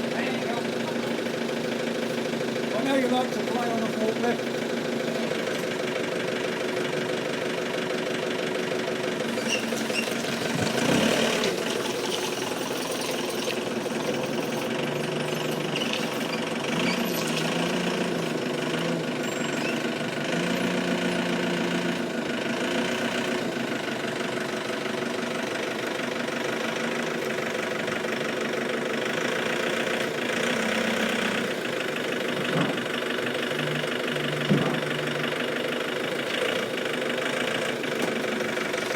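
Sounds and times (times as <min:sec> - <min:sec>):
forklift engine running: 0:00.0 - 0:38.9.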